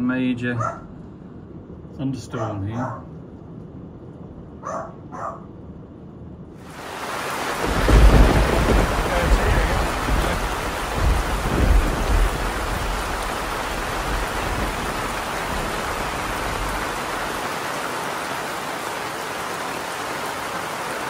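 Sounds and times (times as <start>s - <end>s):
heavy rain pouring: 6.6s - 21.0s
low rumble of thunder: 7.4s - 17.4s.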